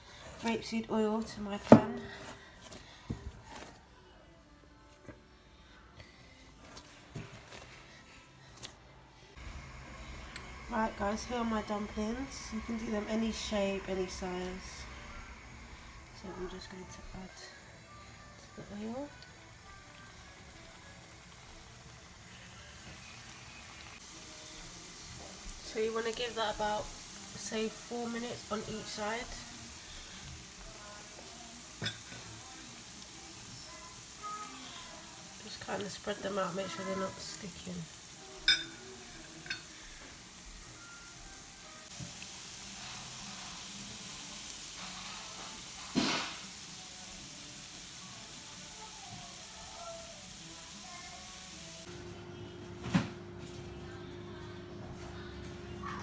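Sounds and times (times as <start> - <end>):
oil sizzling in a frying pan: 9.3 - 51.9.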